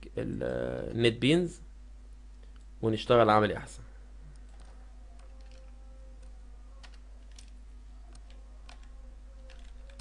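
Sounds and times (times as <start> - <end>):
low electrical hum: 0.0 - 10.0
computer keyboard clicks: 4.3 - 10.0.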